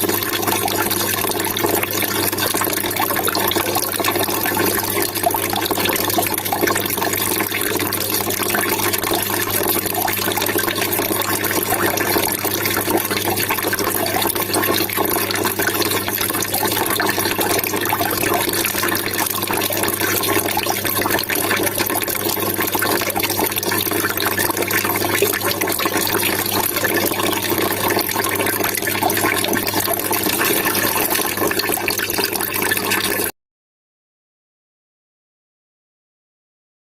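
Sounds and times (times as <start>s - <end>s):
water trickling and splashing: 0.0s - 33.3s.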